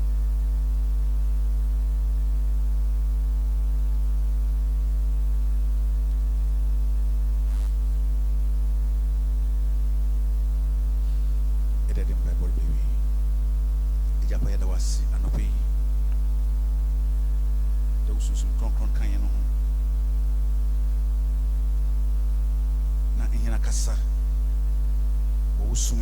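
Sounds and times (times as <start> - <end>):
electrical mains hum: 0.0 - 26.0
faint voice: 25.6 - 26.0.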